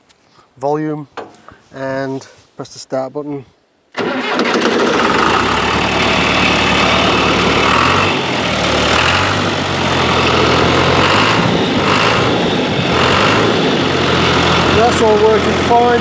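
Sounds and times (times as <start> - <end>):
tractor engine idling: 4.0 - 16.0.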